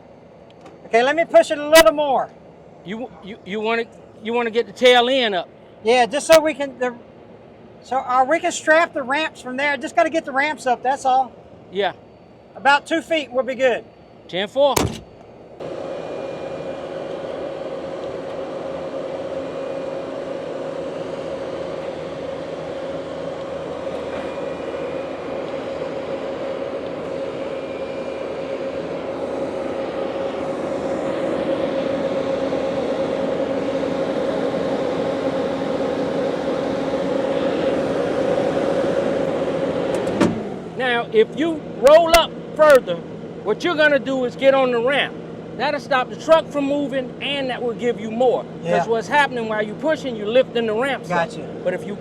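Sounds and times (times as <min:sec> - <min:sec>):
heavy equipment engine droning: 0:14.7 - 0:52.0.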